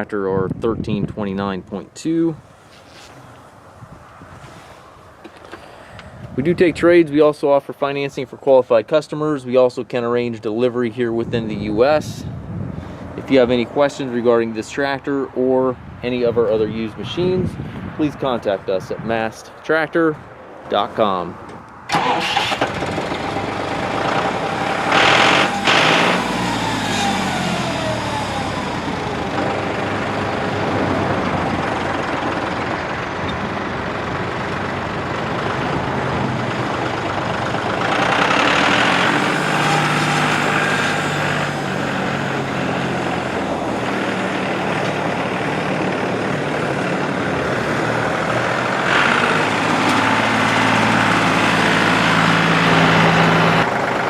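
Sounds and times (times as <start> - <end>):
tractor diesel engine revving: 21.9 - 54.0.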